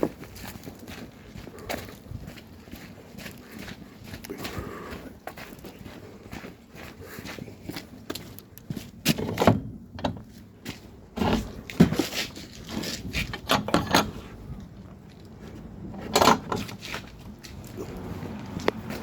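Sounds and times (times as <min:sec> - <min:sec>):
metal clatter: 0:11.2 - 0:14.7, 0:15.9 - 0:17.1
tools clinking and scraping: 0:11.2 - 0:15.3, 0:15.9 - 0:18.0.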